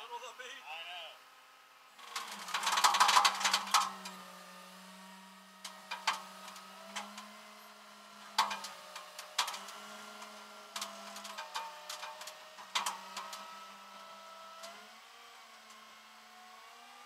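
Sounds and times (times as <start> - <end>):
clicks and rattles: 2.1 - 4.2.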